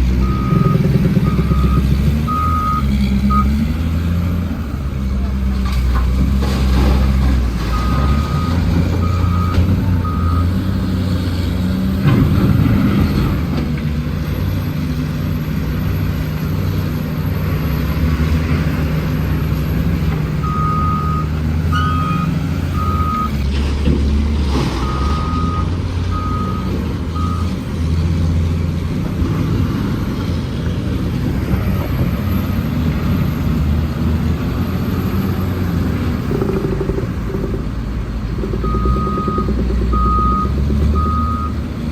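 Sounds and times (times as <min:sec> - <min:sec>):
heavy truck engine running: 0:00.0 - 0:41.9
reversing alarm beeping: 0:00.2 - 0:03.7, 0:07.7 - 0:10.6, 0:20.4 - 0:23.4, 0:24.8 - 0:27.5, 0:38.6 - 0:41.6.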